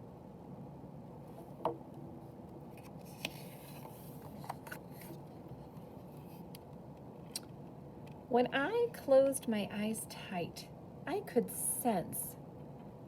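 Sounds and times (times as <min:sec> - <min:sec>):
book page turning: 0:02.7 - 0:05.2.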